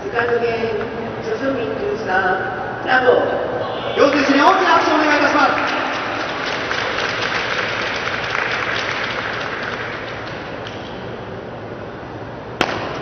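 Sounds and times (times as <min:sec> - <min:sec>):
audience applauding: 0:04.0 - 0:10.9.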